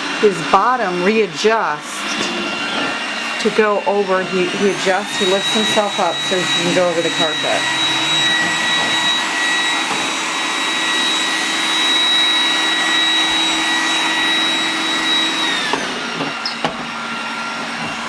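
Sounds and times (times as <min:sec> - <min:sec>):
robot vacuum motor and brush: 0:00.0 - 0:18.0.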